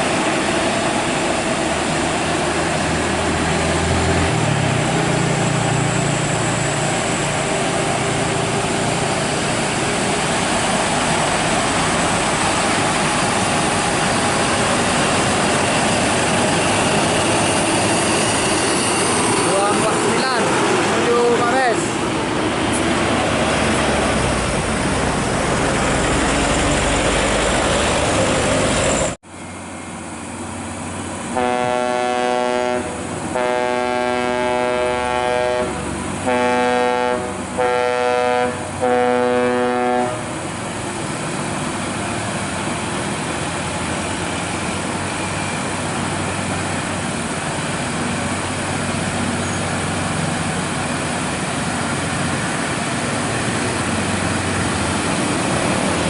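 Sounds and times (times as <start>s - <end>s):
engine rumble: 0.0s - 31.4s, 40.1s - 56.0s
rushing traffic and wind: 0.0s - 56.0s
vehicle horn blasts: 31.4s - 40.3s.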